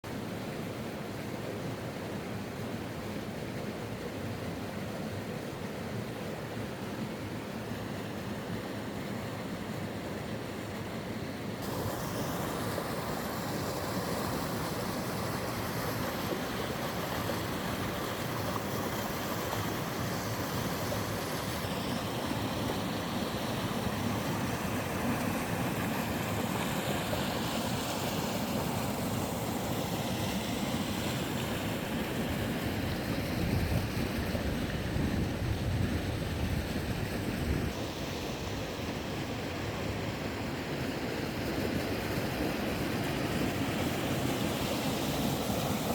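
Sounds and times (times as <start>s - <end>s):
water rushing over rocks: 11.6s - 35.1s, 36.5s - 45.9s.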